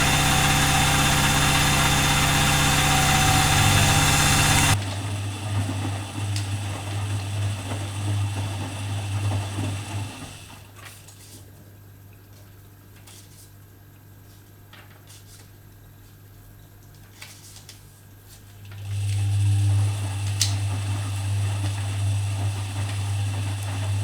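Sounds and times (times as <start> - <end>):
washing machine drum winding down: 0.0 - 4.8.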